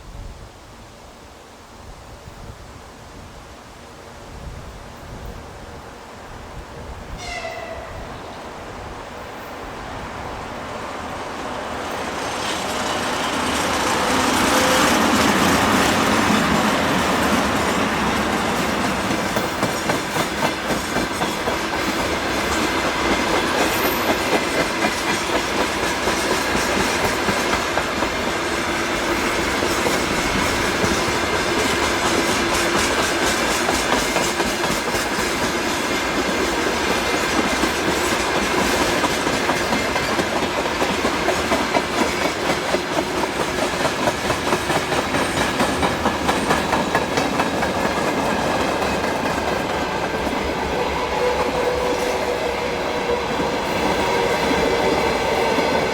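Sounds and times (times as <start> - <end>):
freight train wagons rolling past: 7.2 - 55.9
train wheels clattering: 11.4 - 55.9.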